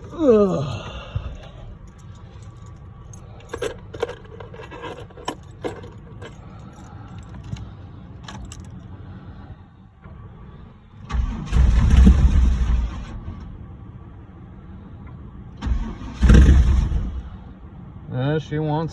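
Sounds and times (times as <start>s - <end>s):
keys jangling: 0.0s - 8.9s
car engine starter cranking: 10.9s - 13.5s, 15.6s - 17.3s.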